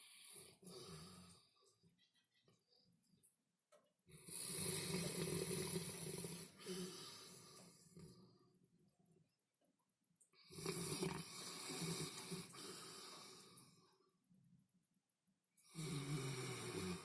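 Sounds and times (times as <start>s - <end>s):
dog snoring: 4.1s - 8.5s, 10.4s - 13.8s, 15.6s - 17.0s.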